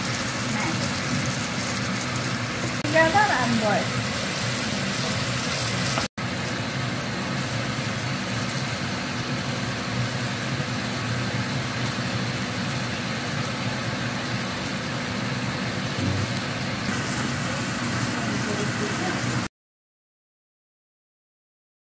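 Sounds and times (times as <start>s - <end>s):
oil sizzling in a wok: 0.0s - 19.5s
steady low hum: 14.6s - 19.3s.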